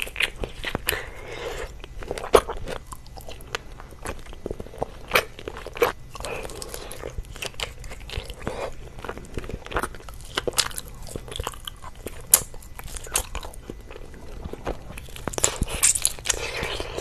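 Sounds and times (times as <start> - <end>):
biting and chewing food: 0.0 - 17.0.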